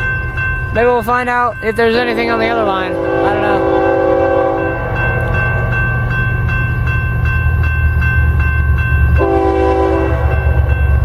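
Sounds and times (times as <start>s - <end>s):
diesel locomotives rumbling: 0.0s - 11.0s
pulsing ringing bell: 0.0s - 11.0s
locomotive horn chord: 2.5s - 5.8s, 9.2s - 10.7s.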